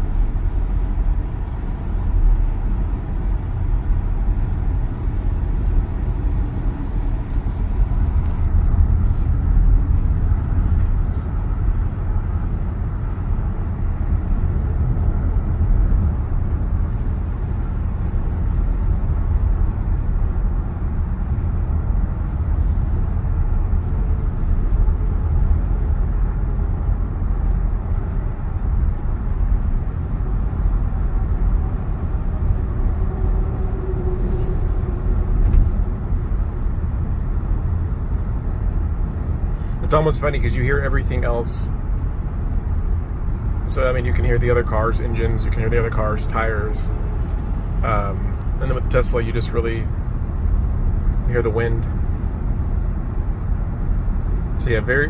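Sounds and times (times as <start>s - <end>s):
tyre rumble inside car: 5.6s - 12.3s, 22.2s - 37.5s.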